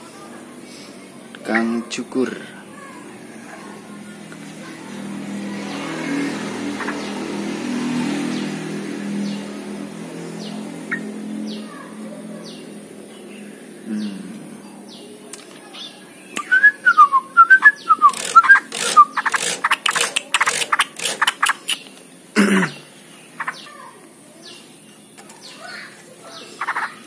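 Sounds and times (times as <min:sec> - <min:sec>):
bird warbling song: 0:05.6 - 0:07.4, 0:08.1 - 0:11.8, 0:12.4 - 0:23.8, 0:24.4 - 0:27.0
loud sharp clicks: 0:18.0 - 0:22.1.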